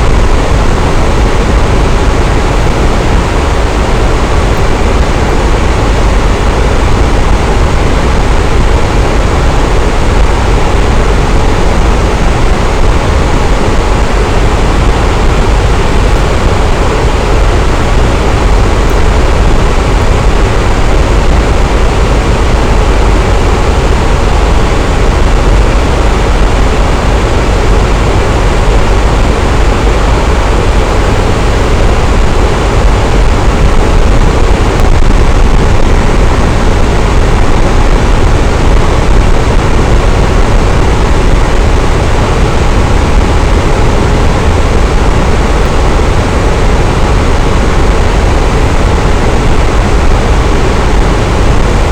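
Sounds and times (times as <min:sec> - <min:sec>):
electric fan running: 0:00.0 - 0:51.9.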